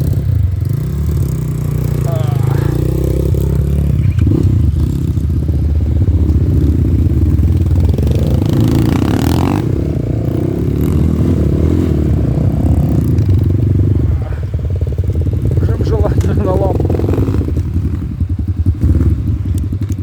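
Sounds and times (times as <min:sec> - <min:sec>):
off-road motorcycle engine revving: 0:00.0 - 0:20.0.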